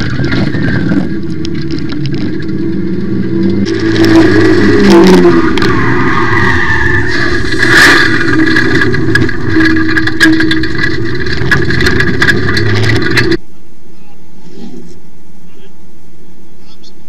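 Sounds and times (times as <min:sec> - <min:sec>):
car engine at high revs: 0:00.0 - 0:13.4
rattling clicks: 0:07.2 - 0:13.4.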